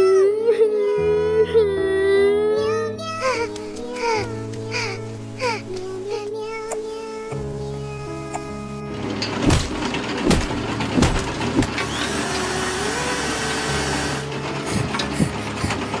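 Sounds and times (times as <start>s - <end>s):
background music with low notes: 0.0s - 16.0s
sharp knocks: 9.4s - 12.3s.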